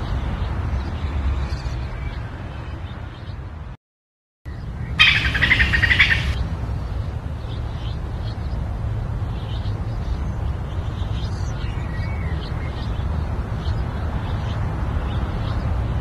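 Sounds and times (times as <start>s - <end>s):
faint bird chirps: 5.0s - 6.4s
songbird trilling: 5.0s - 6.4s.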